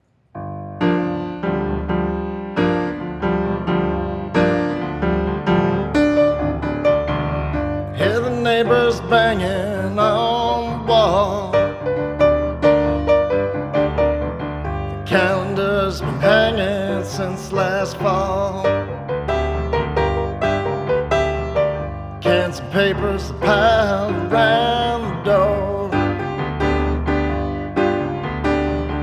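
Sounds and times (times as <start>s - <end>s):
piano chords: 0.0s - 29.0s.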